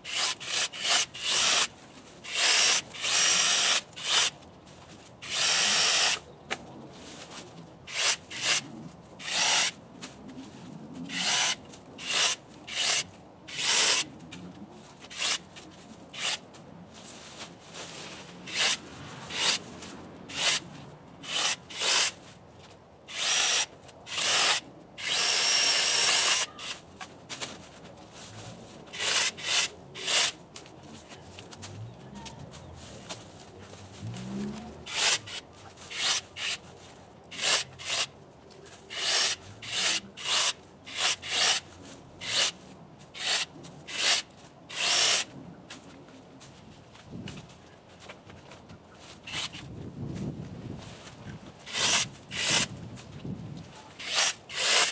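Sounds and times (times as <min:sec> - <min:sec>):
electric chainsaw cutting branches: 0:00.0 - 0:04.4, 0:05.2 - 0:06.2, 0:07.9 - 0:08.6, 0:09.2 - 0:09.8, 0:11.1 - 0:14.0, 0:15.1 - 0:15.4, 0:16.2 - 0:16.4, 0:18.5 - 0:19.6, 0:20.3 - 0:20.6, 0:21.2 - 0:22.2, 0:23.1 - 0:26.8, 0:29.0 - 0:30.4, 0:34.1 - 0:36.6, 0:37.3 - 0:38.1, 0:38.9 - 0:41.6, 0:43.2 - 0:45.3, 0:51.7 - 0:52.7, 0:54.0 - 0:54.9
branches rustling: 0:00.0 - 0:54.9.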